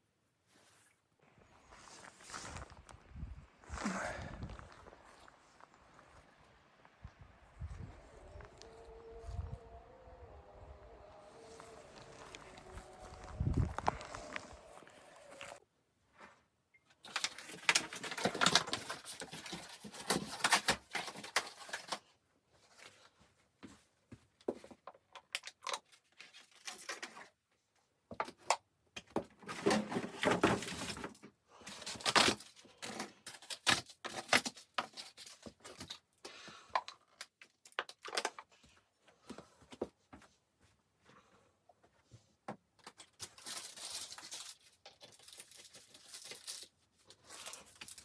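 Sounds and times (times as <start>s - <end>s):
rustling and crinkling: 0.1s - 9.8s, 10.4s - 48.0s.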